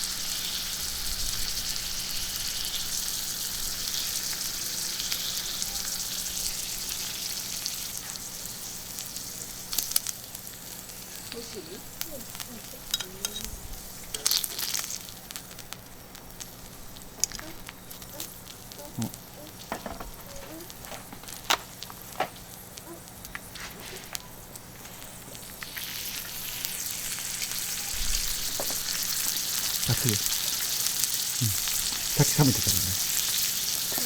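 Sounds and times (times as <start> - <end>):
steak sizzling on griddle: 0.0 - 34.0
fat popping and spitting: 17.2 - 20.8.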